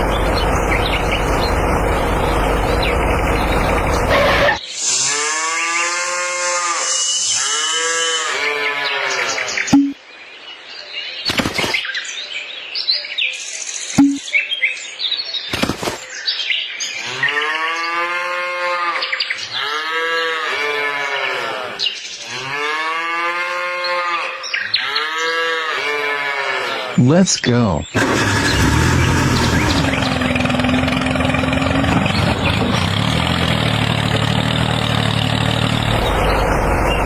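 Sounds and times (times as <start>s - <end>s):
cattle mooing: 5.0s - 9.6s, 17.0s - 27.0s.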